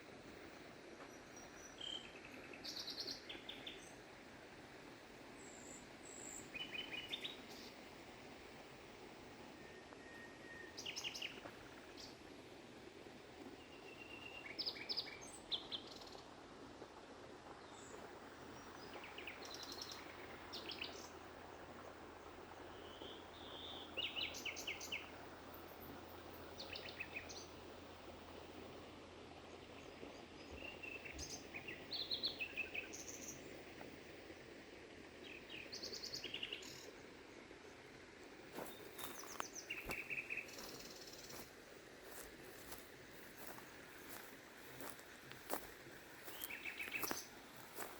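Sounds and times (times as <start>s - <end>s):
flowing stream: 11.2s - 26.6s, 33.2s - 47.9s
small birds chirping and trilling: 38.6s - 47.9s.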